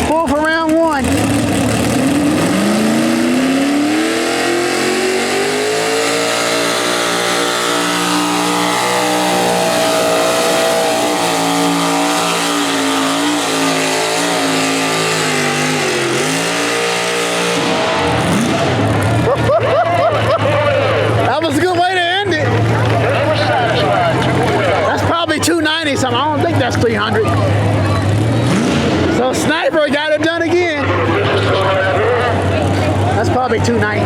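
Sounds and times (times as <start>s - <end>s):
tractor engine at full throttle: 0.0s - 34.0s.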